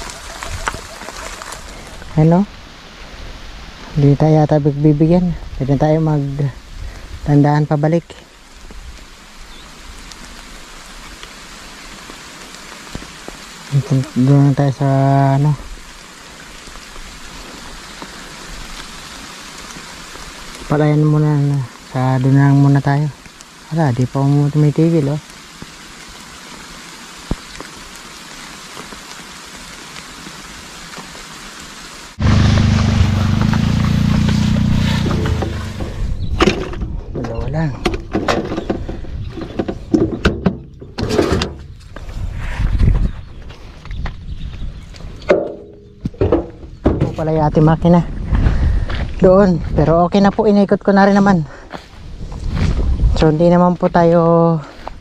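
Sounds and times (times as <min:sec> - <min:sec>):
rain falling on pond: 0:00.0 - 0:36.6
loud low rumbling noise: 0:32.2 - 0:36.3.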